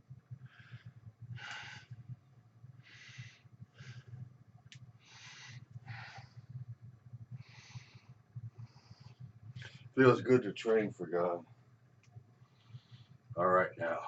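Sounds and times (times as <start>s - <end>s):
low steady hum: 0.0s - 14.0s
man breathing hard: 0.5s - 2.0s, 2.8s - 4.3s, 5.0s - 6.6s.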